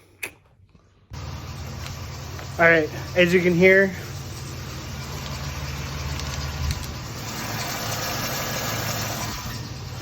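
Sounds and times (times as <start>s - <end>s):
car engine idling: 1.1s - 10.0s
drive belt squeak: 7.2s - 10.0s.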